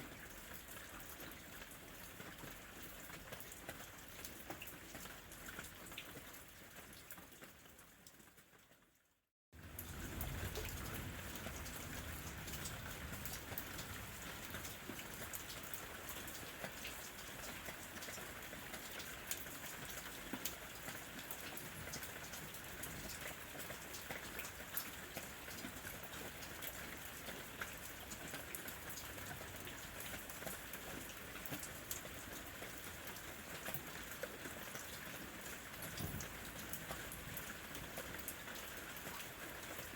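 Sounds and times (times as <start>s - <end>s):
steady rain falling: 0.0s - 8.9s, 9.6s - 39.9s
raindrops ticking: 9.6s - 39.9s.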